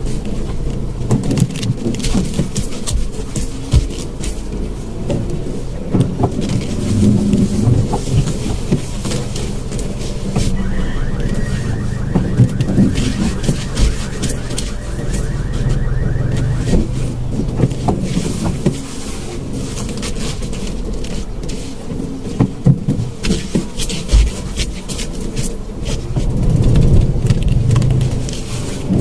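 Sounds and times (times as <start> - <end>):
car engine humming: 3.9 - 22.1.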